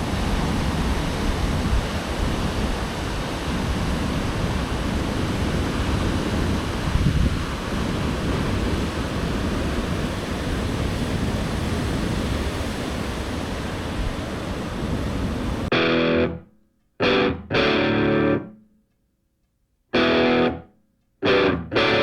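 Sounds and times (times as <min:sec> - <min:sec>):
wind on microphone: 0:00.0 - 0:15.7
heavy surf: 0:00.0 - 0:16.3, 0:17.0 - 0:18.4, 0:20.0 - 0:20.6, 0:21.2 - 0:22.0
distorted electric guitar chords: 0:15.7 - 0:16.4, 0:17.0 - 0:18.6, 0:19.9 - 0:22.0.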